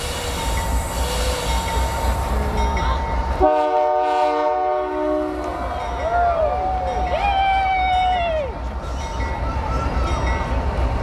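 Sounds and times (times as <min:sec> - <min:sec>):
diesel locomotive rumbling: 0:00.0 - 0:11.0
train air horn chord: 0:03.4 - 0:05.5.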